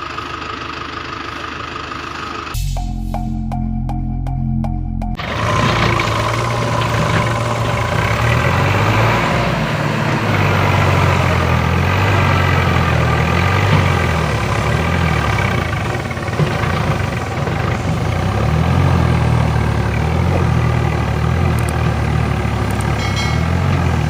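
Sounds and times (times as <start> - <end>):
heavy engine idling: 0.0 - 24.0
music: 2.6 - 5.2.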